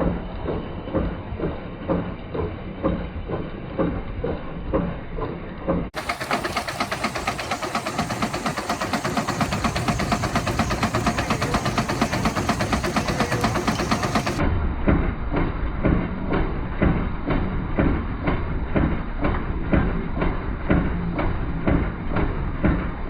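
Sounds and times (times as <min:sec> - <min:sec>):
steam engine exhaust chuffing: 0:05.9 - 0:14.4.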